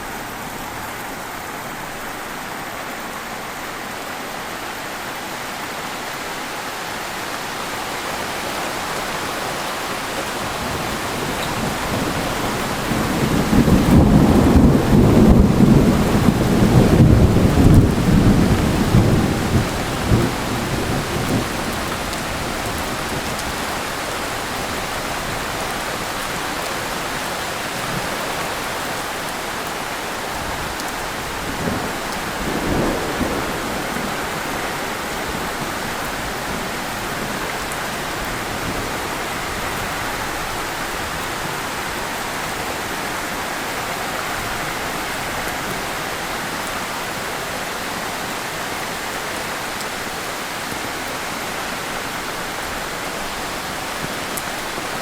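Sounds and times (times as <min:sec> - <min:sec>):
heavy rain falling: 0:00.0 - 0:55.0
thunder rumbling: 0:07.8 - 0:29.2, 0:30.2 - 0:39.9.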